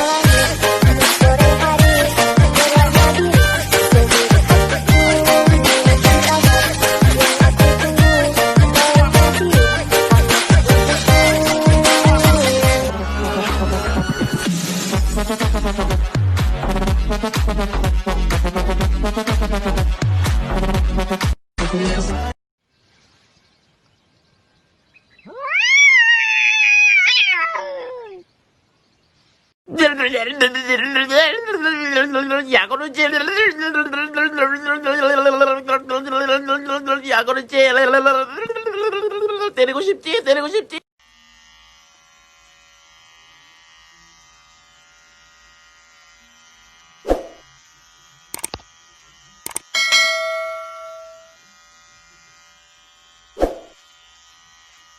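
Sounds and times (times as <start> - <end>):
cat yowling: 25.2 - 28.3
sharp clicks: 48.3 - 48.7, 49.4 - 49.7
metallic clang ringing: 49.8 - 51.4.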